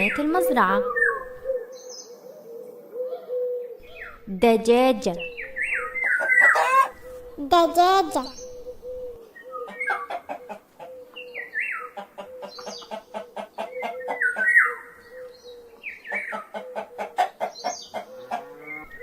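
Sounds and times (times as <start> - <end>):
hen clucking: 5.2 - 11.2, 11.8 - 14.8, 16.1 - 19.0.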